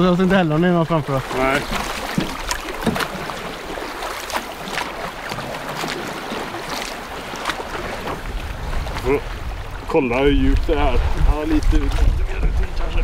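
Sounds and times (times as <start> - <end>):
water splashing around a canoe: 0.0 - 13.0
wind on microphone: 7.6 - 13.0.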